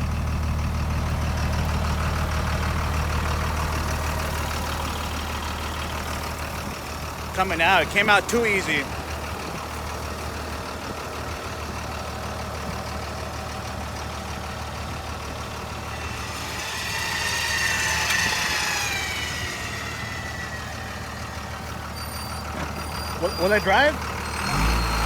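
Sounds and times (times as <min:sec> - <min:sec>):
truck engine idling: 0:00.0 - 0:25.0
high whine gliding down: 0:15.7 - 0:21.9.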